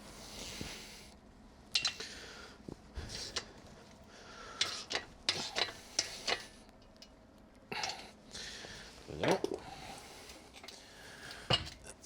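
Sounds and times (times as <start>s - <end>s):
metal tools clinking: 1.8s - 2.0s.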